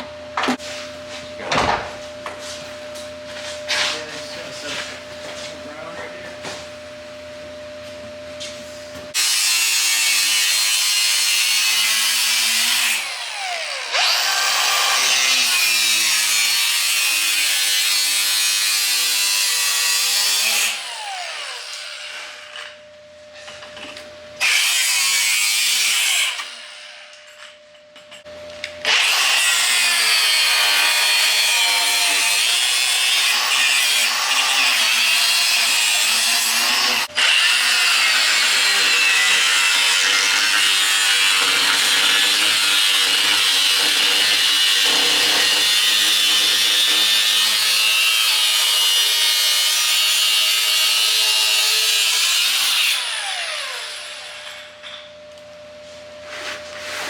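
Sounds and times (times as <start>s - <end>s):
power tool on sheet metal: 9.1s - 22.8s, 23.8s - 27.4s, 28.8s - 55.0s.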